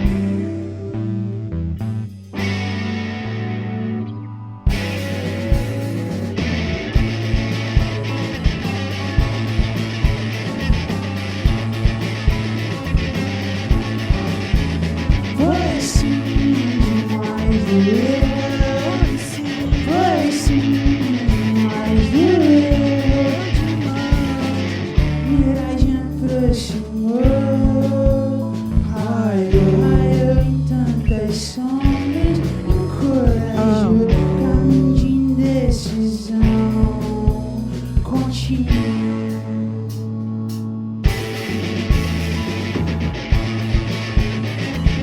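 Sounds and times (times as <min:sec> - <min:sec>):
rock band playing live: 0:00.0 - 0:01.1, 0:02.0 - 0:04.0, 0:04.6 - 0:45.0
person singing: 0:04.7 - 0:40.2.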